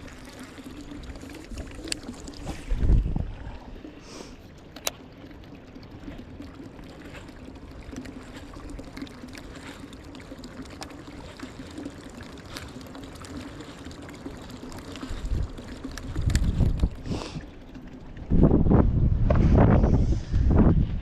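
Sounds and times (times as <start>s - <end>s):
water pouring out of boat: 0.0s - 20.2s
pump hum: 0.0s - 21.0s
wind rumble on microphone: 2.4s - 3.8s, 15.1s - 21.0s.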